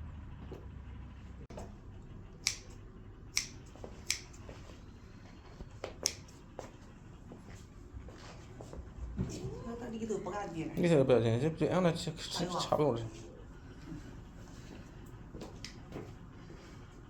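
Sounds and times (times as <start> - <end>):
low steady hum: 0.0 - 17.0
sharp clicks: 2.4 - 4.4.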